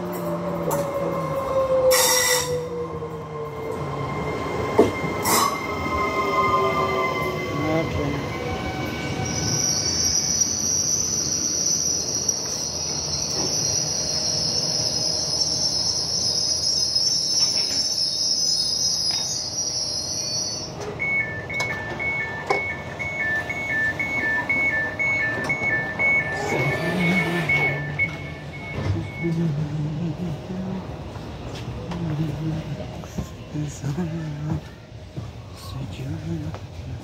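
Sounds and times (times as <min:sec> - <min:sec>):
train brakes squealing: 0:00.0 - 0:02.9, 0:03.8 - 0:29.3
train running noise: 0:00.0 - 0:37.0
two-tone door beep: 0:20.7 - 0:29.6.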